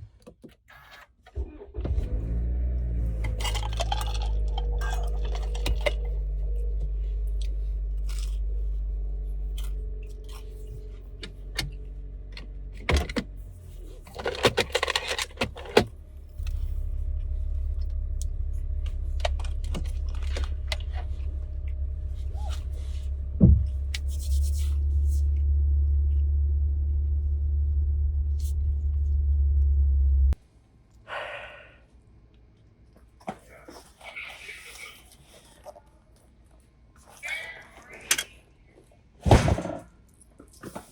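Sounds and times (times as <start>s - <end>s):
steady low rumble: 1.7s - 30.4s.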